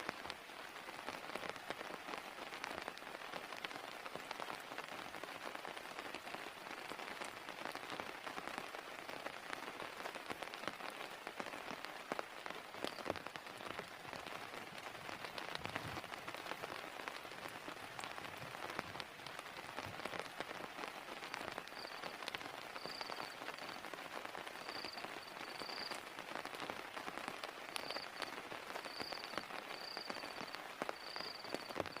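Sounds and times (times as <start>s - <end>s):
heavy rain falling: 0.0s - 32.0s
faint high chirp: 21.7s - 22.2s, 22.8s - 23.8s, 24.6s - 26.0s, 27.7s - 32.0s.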